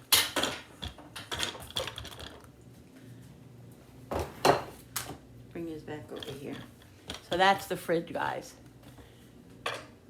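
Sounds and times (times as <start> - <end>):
kitchen items knocking and clattering: 0.0 - 2.5, 4.1 - 4.8.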